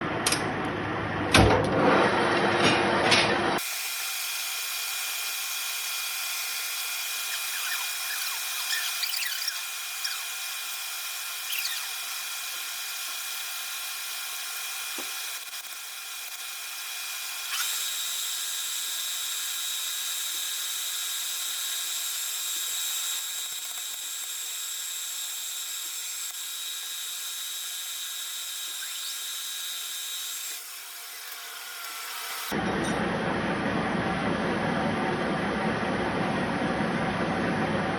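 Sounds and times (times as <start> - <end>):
lathe high-pitched whine: 3.6 - 32.6.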